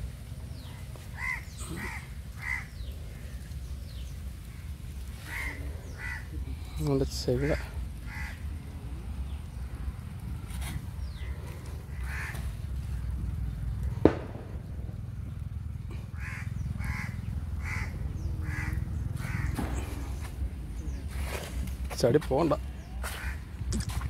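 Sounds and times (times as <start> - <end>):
low steady rumble: 0.0 - 24.0
bird calling: 0.5 - 8.6, 10.6 - 13.3, 15.3 - 21.8.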